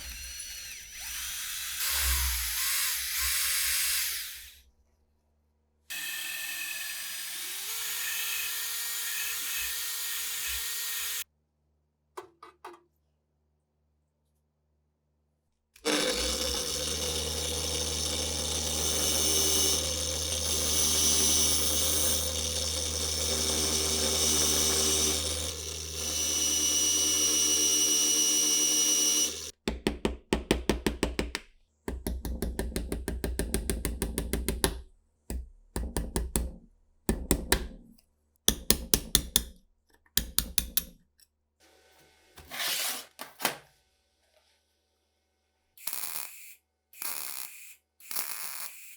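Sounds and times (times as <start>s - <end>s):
small power tool motor: 0.0s - 4.6s, 5.9s - 11.2s, 15.8s - 29.5s, 45.8s - 48.9s.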